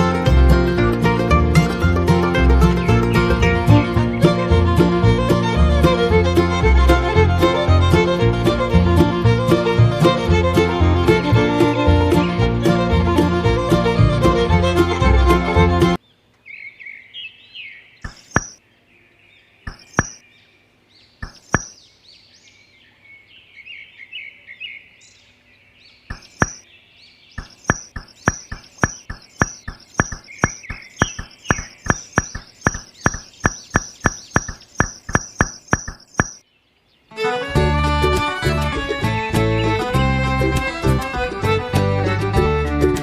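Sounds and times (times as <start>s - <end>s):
birds chirping: 2.6s - 6.0s, 16.0s - 37.2s
sharp knocks: 18.0s - 18.6s, 19.7s - 20.2s, 21.2s - 21.8s, 26.1s - 26.6s, 27.4s - 36.4s.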